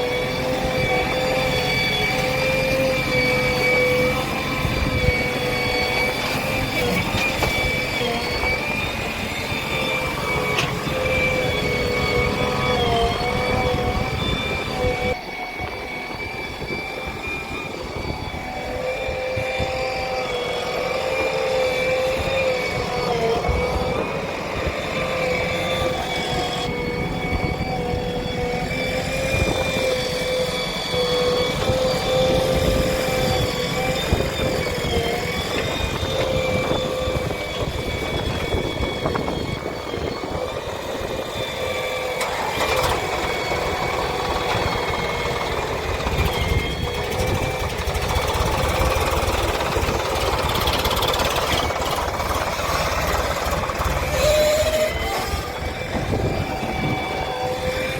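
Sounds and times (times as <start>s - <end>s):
heavy diesel machinery running: 0.0s - 57.9s.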